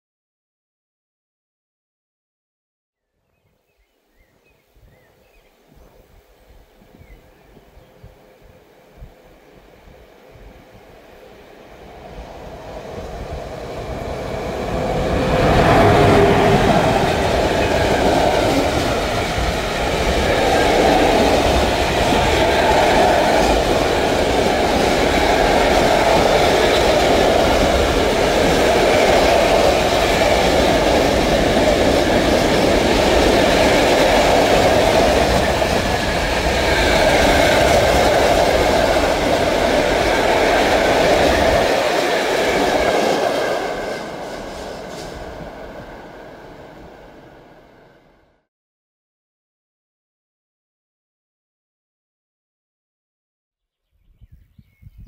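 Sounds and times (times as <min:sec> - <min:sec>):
electric locomotive passing: 0:05.8 - 0:48.3
train wagons rumbling on rails: 0:11.8 - 0:47.9.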